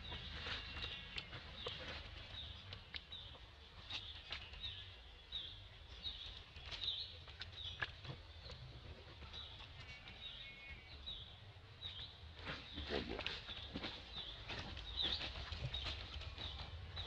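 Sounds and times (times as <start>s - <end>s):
crackling dry leaf litter: 0.0s - 11.2s
bird chirping: 0.0s - 17.0s.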